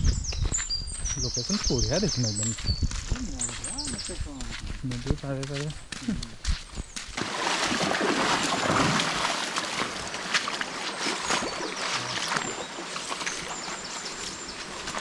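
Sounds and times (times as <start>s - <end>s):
river water rushing over rocks: 7.2s - 15.0s
small sharp splashes and knocks: 7.2s - 15.0s.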